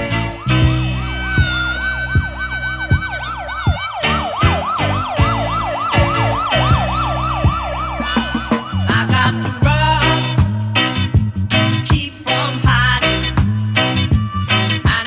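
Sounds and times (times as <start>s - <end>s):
warbling siren-like sweep: 0.0s - 10.3s
bass line: 0.0s - 15.0s
drum beat: 1.1s - 15.0s.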